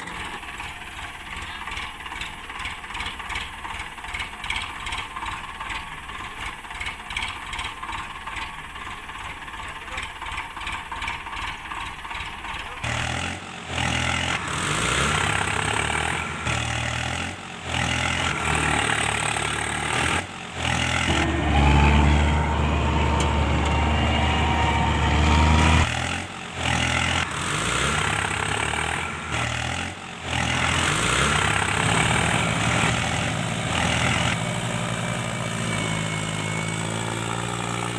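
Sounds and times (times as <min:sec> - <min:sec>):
heavy vehicle engine revving: 0:12.6 - 0:37.9.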